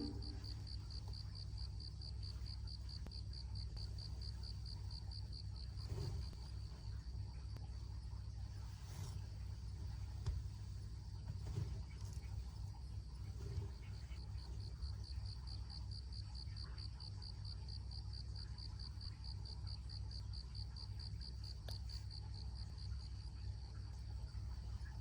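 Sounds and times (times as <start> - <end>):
low rumble: 0.0 - 1.3
cricket chirping: 0.0 - 8.5, 12.5 - 25.0.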